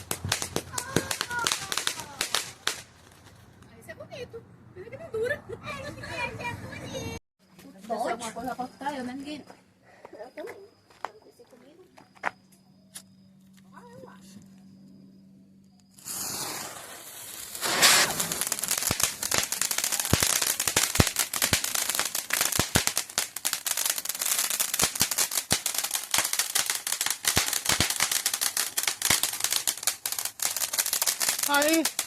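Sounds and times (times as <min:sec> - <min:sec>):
firework hiss: 0:00.0 - 0:03.2, 0:15.9 - 0:32.0
firecracker crackling and pops: 0:00.0 - 0:03.8, 0:15.8 - 0:32.0
loud firework bang: 0:17.6 - 0:21.6.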